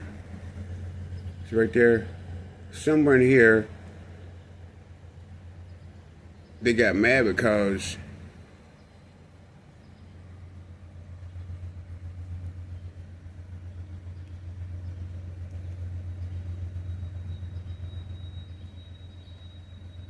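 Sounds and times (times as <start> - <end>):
faint high whine: 0.0 - 20.0
low rumble: 0.0 - 20.0.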